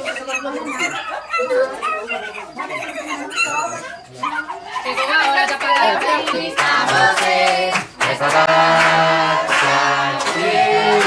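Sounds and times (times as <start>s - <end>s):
group of voices singing: 4.9s - 11.0s
hand clapping: 5.2s - 11.0s.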